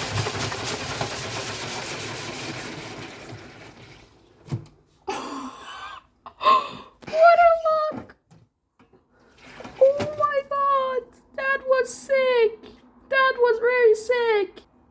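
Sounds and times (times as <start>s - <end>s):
water churning and spraying: 0.0s - 4.1s
washing machine drum spinning: 0.0s - 4.2s.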